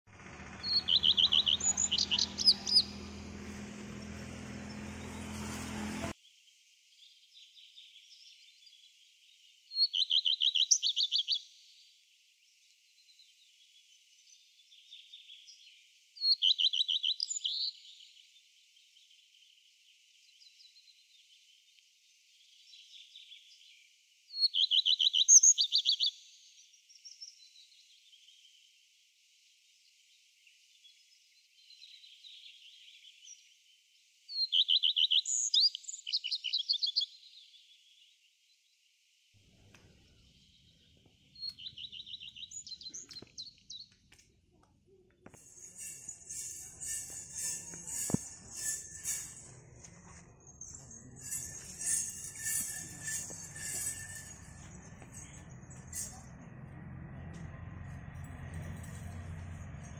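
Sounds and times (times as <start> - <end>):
songbird singing trilled phrase: 0.6 - 3.2, 9.8 - 11.5, 16.3 - 17.8, 24.4 - 26.3, 34.4 - 37.4, 41.4 - 43.9.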